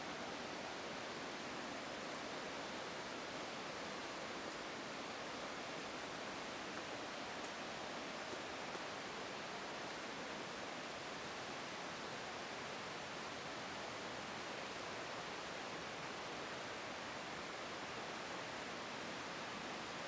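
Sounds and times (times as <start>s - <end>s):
fast-flowing water rushing: 0.0s - 20.0s.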